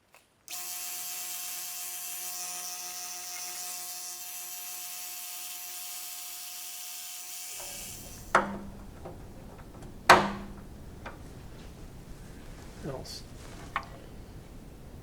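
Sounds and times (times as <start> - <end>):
power tool motor whining: 0.5 - 11.5.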